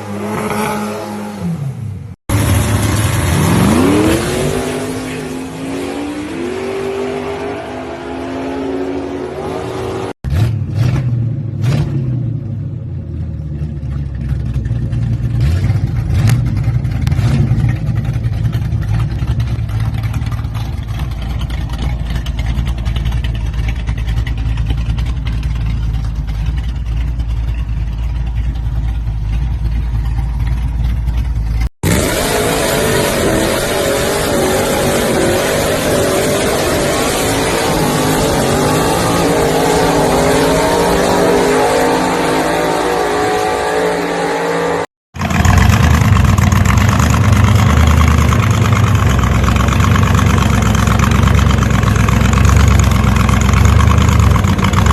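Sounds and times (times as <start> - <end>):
car engine revving: 0.0 - 12.2, 29.8 - 54.9
engine deep steady rumble: 12.4 - 31.7.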